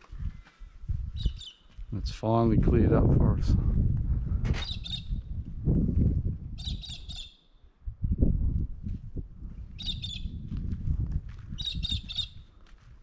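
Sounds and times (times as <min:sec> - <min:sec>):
steady low rumble: 0:01.9 - 0:06.6.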